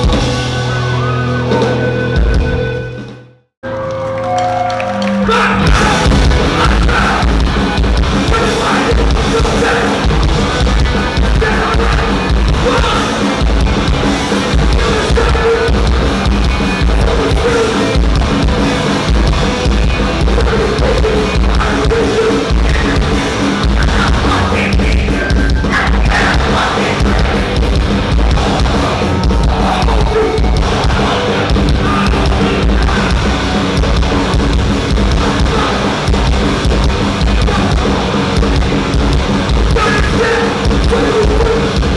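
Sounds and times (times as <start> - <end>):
punk band playing: 0.0 - 41.9.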